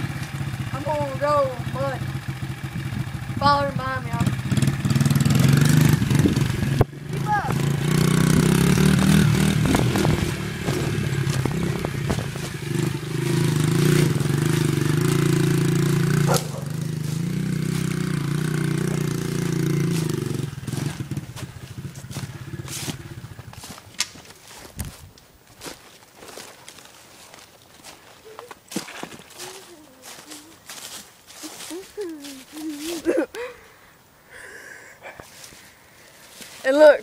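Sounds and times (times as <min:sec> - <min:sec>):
dirt bike engine running: 0:00.0 - 0:33.6.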